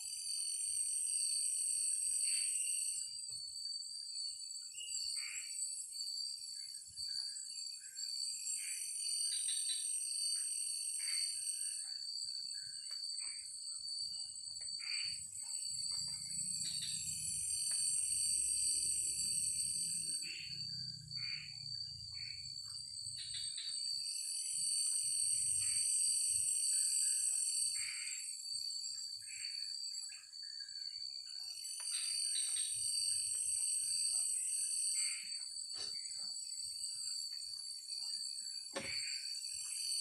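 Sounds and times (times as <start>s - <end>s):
high insect trill: 0.0s - 40.0s
frog calls and chirps: 2.0s - 3.1s, 4.6s - 36.3s, 38.0s - 40.0s.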